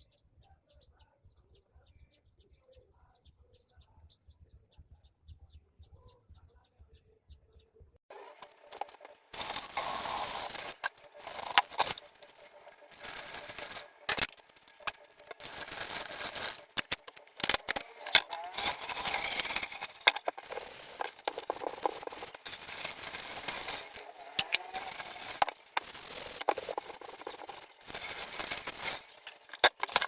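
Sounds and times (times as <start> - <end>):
pans being scrubbed: 8.2 - 30.0.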